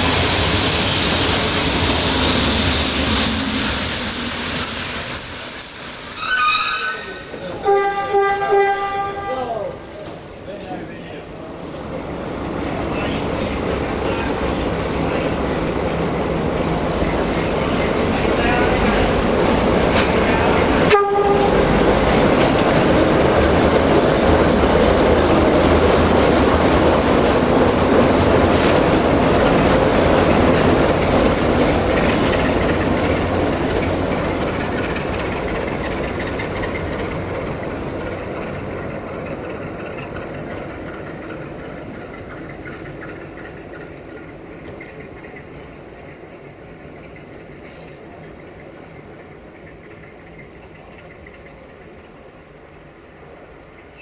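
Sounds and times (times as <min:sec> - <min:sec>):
train passing: 0:00.0 - 0:54.0
train horn toot: 0:06.1 - 0:09.6, 0:20.9 - 0:21.7.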